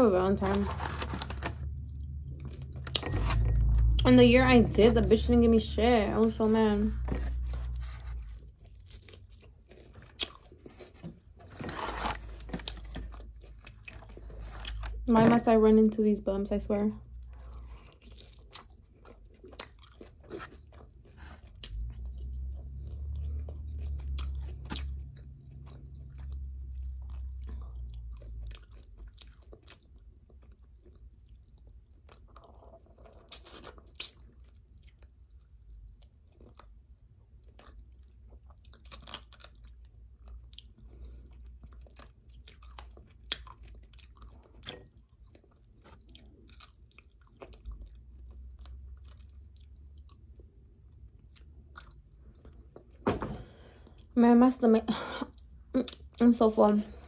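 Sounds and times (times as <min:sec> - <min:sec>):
low rumble: 0:00.6 - 0:07.8
person chewing crunchy food: 0:07.0 - 0:15.0, 0:17.1 - 0:54.1.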